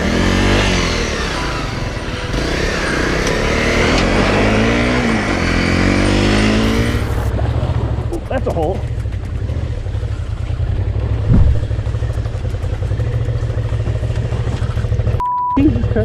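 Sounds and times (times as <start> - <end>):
motorcycle engine accelerating: 0.0 - 16.0
wind noise on microphone: 11.3 - 11.8.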